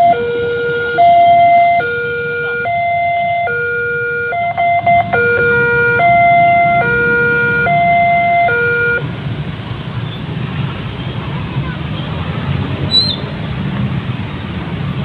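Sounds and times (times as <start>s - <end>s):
electronic two-tone warning signal: 1.0s - 9.0s.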